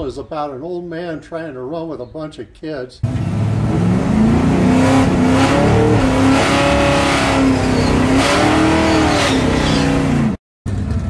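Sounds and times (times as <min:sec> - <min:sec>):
car engine revving high: 0:03.0 - 0:10.4.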